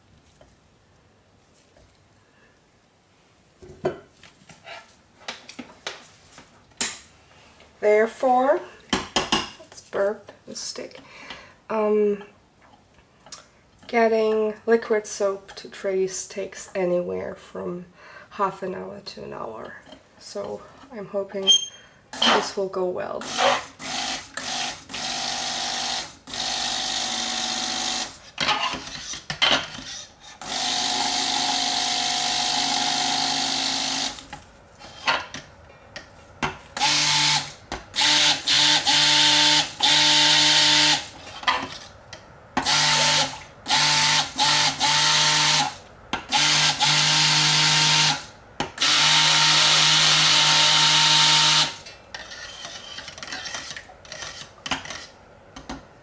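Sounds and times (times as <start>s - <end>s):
stick blender motor hum: 42.6s - 51.9s.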